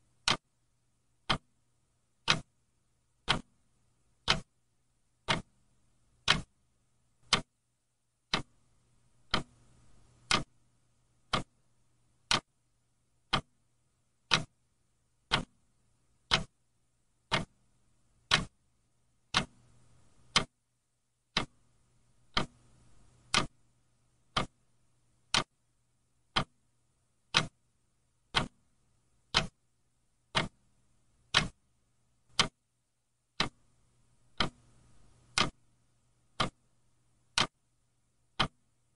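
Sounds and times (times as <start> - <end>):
faint low hum: 0.0 - 38.9
clock ticking: 0.2 - 0.4, 1.2 - 1.6, 2.2 - 2.5, 3.2 - 3.6, 4.2 - 4.5, 5.2 - 5.6, 6.2 - 6.5, 7.2 - 7.5, 8.2 - 8.6, 9.2 - 10.6, 11.2 - 11.6, 12.2 - 12.5, 13.2 - 13.6, 14.2 - 14.6, 15.2 - 15.6, 16.2 - 16.6, 17.2 - 17.6, 18.2 - 18.6, 19.3 - 20.6, 21.3 - 21.6, 22.2 - 23.6, 24.2 - 24.6, 25.2 - 25.6, 26.3 - 26.6, 27.2 - 27.6, 28.3 - 28.6, 29.3 - 29.6, 30.3 - 30.7, 31.3 - 31.6, 32.3 - 32.6, 33.4 - 33.7, 34.3 - 35.6, 36.3 - 37.6, 38.3 - 38.7.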